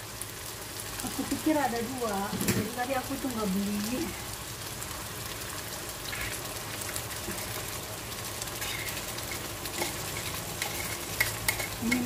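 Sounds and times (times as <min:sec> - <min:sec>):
sauce sizzling in a pan: 0:00.0 - 0:12.0.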